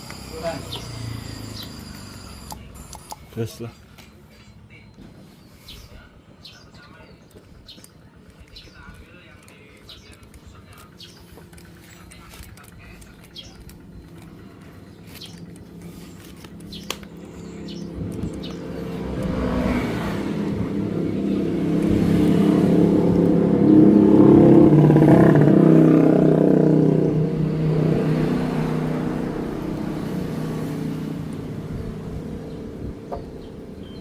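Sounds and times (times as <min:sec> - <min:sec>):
motorcycle passing by: 0:00.0 - 0:02.8, 0:10.8 - 0:34.0.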